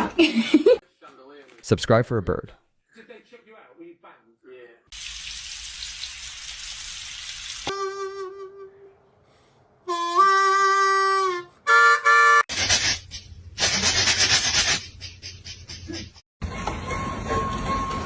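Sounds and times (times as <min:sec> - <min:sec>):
harmonica tones: 0:07.7 - 0:09.0, 0:09.8 - 0:12.5.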